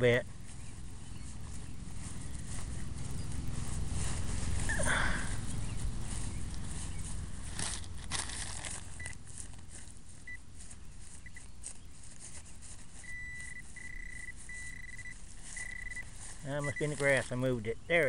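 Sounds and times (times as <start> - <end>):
scraping and rustling of grass: 0.0 - 18.0
metal detector beeping: 4.6 - 5.0, 8.7 - 10.4, 11.0 - 17.5.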